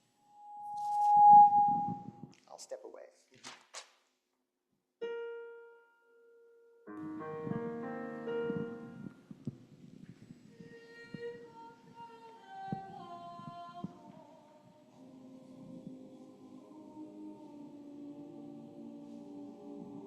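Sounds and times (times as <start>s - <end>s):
piano chord: 5.0s - 9.2s
line of piano notes: 5.0s - 9.4s.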